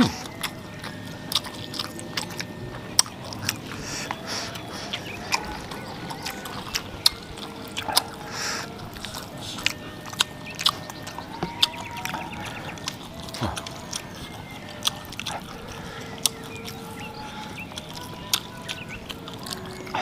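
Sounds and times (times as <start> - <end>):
person chewing food: 0.0 - 20.0
wet mouth clicks: 0.0 - 20.0.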